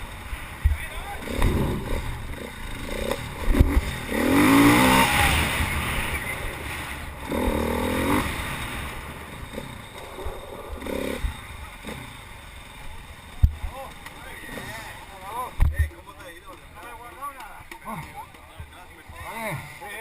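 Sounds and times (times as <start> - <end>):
vehicle engine revving: 0.0 - 13.6.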